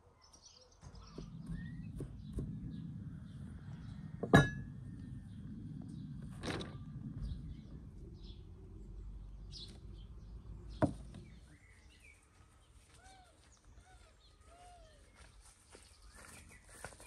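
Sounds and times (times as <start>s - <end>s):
small songbirds chirping: 0.0s - 17.0s
low outdoor rumble: 0.8s - 11.8s.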